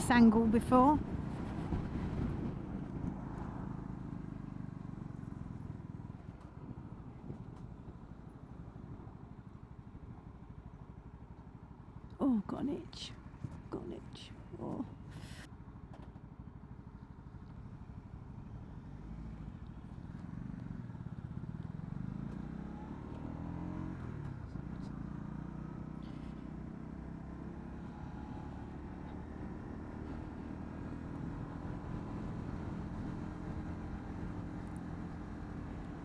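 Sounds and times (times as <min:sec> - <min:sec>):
motorcycle engine accelerating: 0:00.0 - 0:08.0, 0:17.0 - 0:36.0
wind and road noise: 0:00.0 - 0:36.0.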